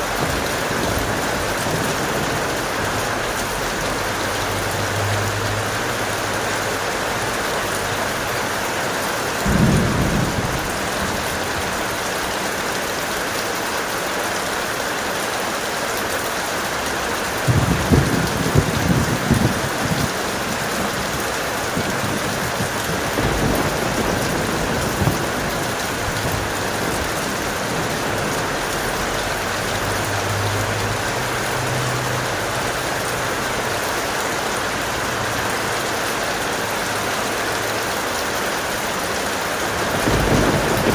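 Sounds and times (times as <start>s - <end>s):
thunder rumbling: 0.0s - 6.1s, 9.4s - 12.2s, 17.4s - 31.9s, 39.7s - 40.9s
heavy rain: 0.0s - 40.9s.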